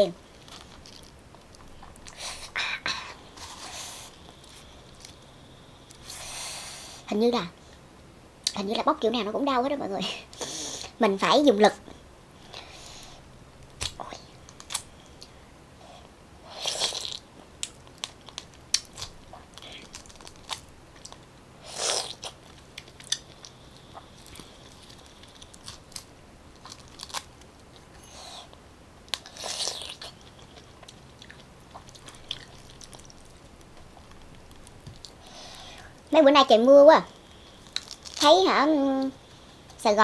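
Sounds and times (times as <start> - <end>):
wet crunching and chewing: 13.6 - 15.3, 16.6 - 28.0, 29.1 - 35.2, 37.1 - 38.3.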